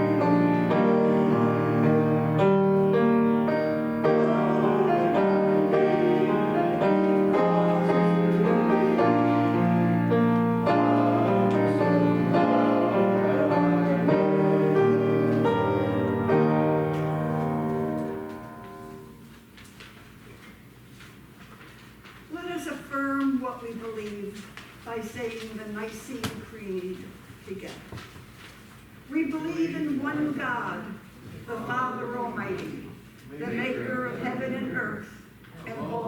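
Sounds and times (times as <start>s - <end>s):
keyboard playing sustained chords: 0.0s - 19.3s.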